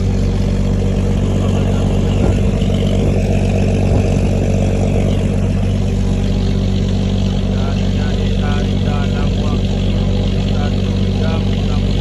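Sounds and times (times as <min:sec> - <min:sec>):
boat engine running: 0:00.0 - 0:12.0
short knocks: 0:02.0 - 0:05.5.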